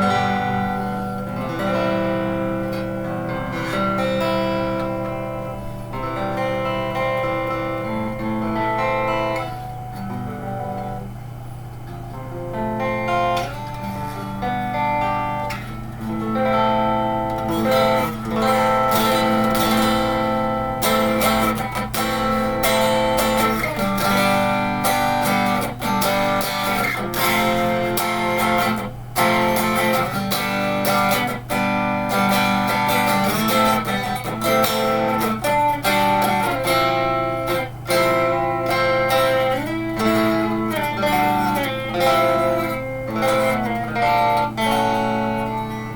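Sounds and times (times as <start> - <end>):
electric guitar notes and chords: 0.0 - 45.9
low amp hum: 0.0 - 45.9.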